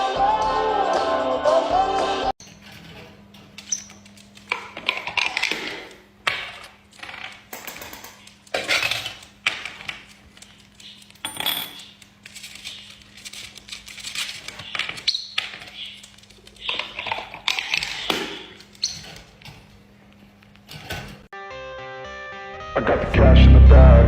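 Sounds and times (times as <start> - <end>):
parrots clicking and tapping: 3.4 - 19.7
parrot high squeaks: 15.0 - 16.0, 18.8 - 19.2.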